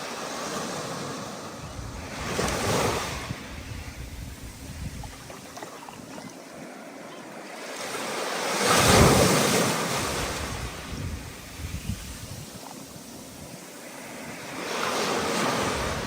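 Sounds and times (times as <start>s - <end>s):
ocean waves breaking: 0.0s - 16.0s
wind gusting on microphone: 1.5s - 6.3s, 8.7s - 16.0s.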